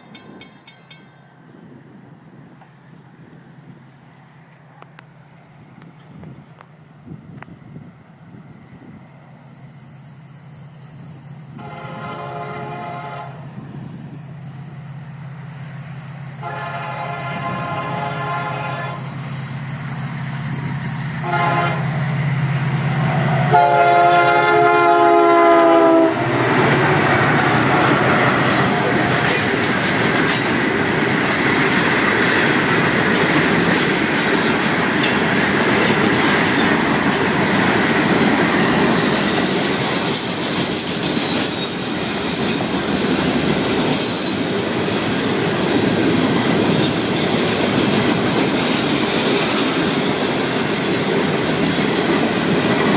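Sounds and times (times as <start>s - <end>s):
locomotive drone: 0.0s - 52.9s
train horn blast: 11.5s - 13.5s, 16.4s - 19.2s, 21.2s - 22.2s, 23.4s - 29.7s
freight cars rumbling and clattering: 26.2s - 52.9s.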